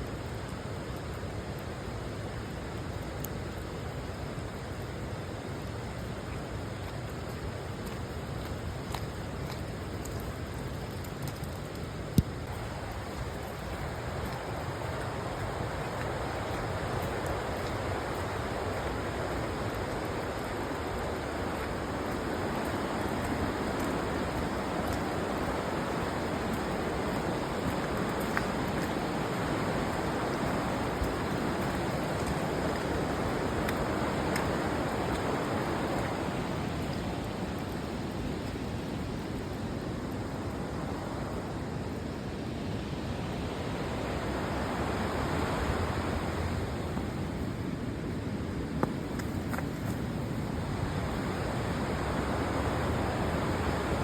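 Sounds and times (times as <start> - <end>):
fast-flowing river rushing: 12.6 - 38.1, 40.6 - 48.4, 49.4 - 54.0.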